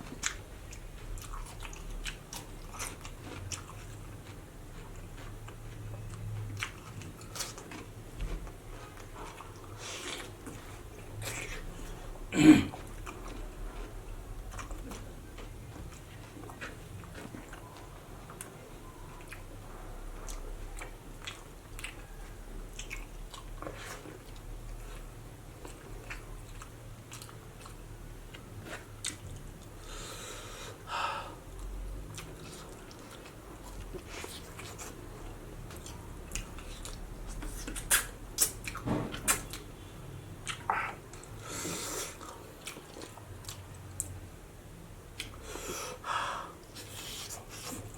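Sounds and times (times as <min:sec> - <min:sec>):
person chewing: 0:00.0 - 0:18.5, 0:19.1 - 0:19.6, 0:20.2 - 0:30.8, 0:31.5 - 0:39.6, 0:40.4 - 0:44.2, 0:45.1 - 0:47.9
wet mouth clicks: 0:37.6 - 0:38.7.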